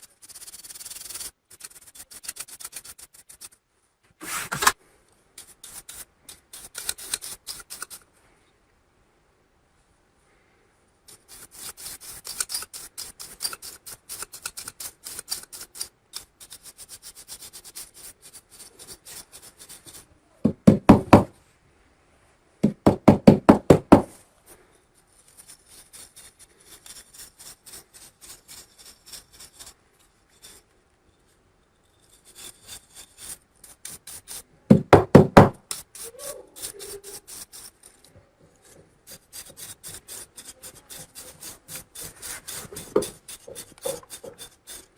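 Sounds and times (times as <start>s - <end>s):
fast knocking strokes: 0.0s - 3.6s, 11.1s - 21.3s, 22.6s - 24.1s, 32.2s - 37.9s, 38.6s - 44.9s
scraping on laptop parts: 0.0s - 4.8s, 24.1s - 44.9s.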